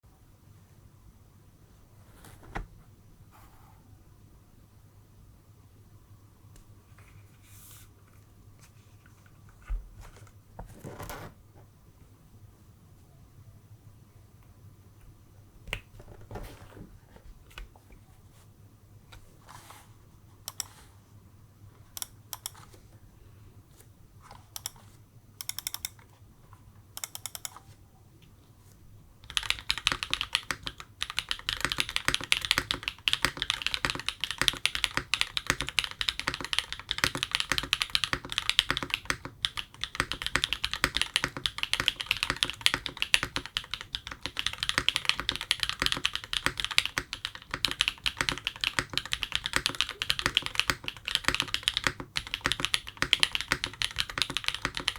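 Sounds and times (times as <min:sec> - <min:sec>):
mechanical keyboard typing: 0:20.5 - 0:20.8, 0:21.9 - 0:22.8, 0:24.2 - 0:26.1, 0:27.0 - 0:27.7, 0:29.2 - 0:54.9.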